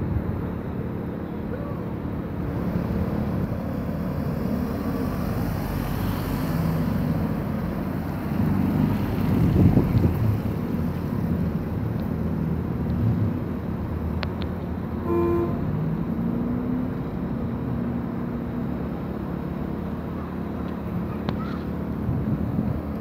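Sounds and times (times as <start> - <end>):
car engine pulling away: 2.5 - 14.2
car horn toot: 15.0 - 15.7.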